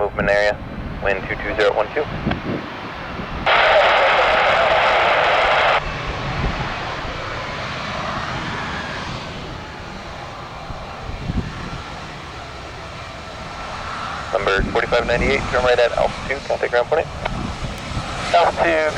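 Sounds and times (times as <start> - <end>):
jet engines rushing: 0.0 - 18.9.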